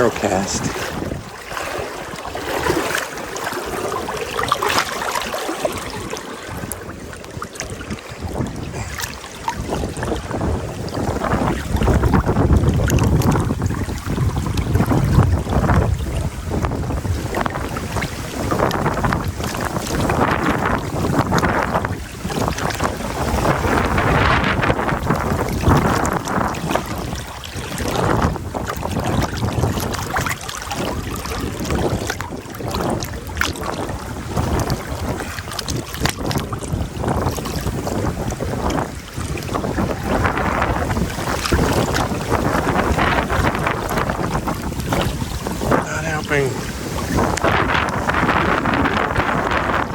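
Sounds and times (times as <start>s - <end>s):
river water rushing: 0.0s - 14.9s, 28.8s - 49.9s
small splashes: 0.0s - 15.5s, 24.6s - 49.2s
wind buffeting microphone: 0.0s - 49.9s.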